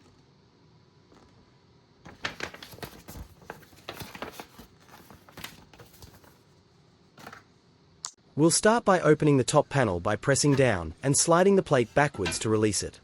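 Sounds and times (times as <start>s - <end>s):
hands handling parts and packaging: 2.1s - 6.4s.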